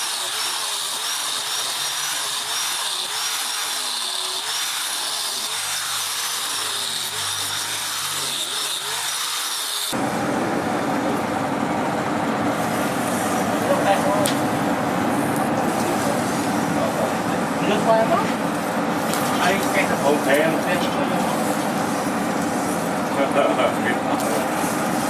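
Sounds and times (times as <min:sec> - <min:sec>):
power tool whining: 0:00.0 - 0:25.0.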